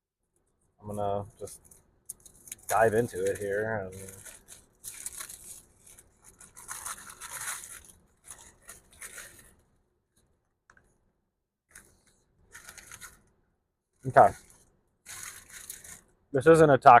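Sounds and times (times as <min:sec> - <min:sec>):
wrapper crinkling and tearing: 0:01.6 - 0:09.7, 0:11.7 - 0:13.3, 0:14.0 - 0:16.2.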